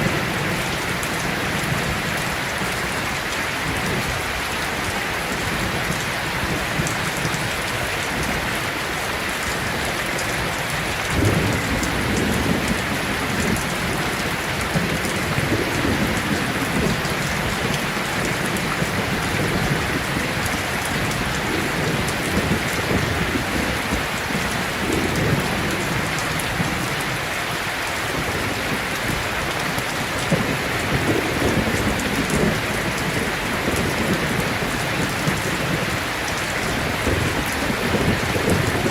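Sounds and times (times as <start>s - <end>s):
heavy rain: 0.0s - 38.9s
thunder rumbling: 9.4s - 27.0s, 28.2s - 38.9s.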